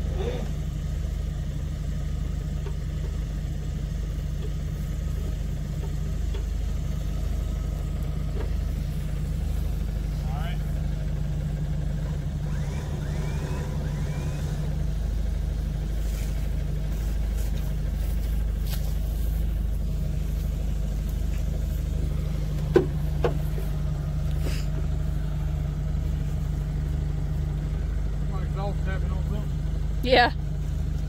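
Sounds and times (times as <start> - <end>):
vehicle engines idling: 0.0 - 31.0.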